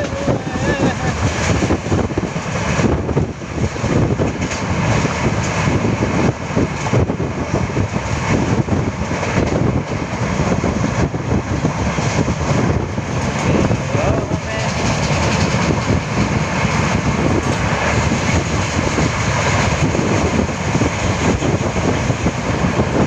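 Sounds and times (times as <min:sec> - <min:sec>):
train wheel and rail noise: 0:00.0 - 0:23.0
wind buffeting microphone: 0:00.0 - 0:23.0.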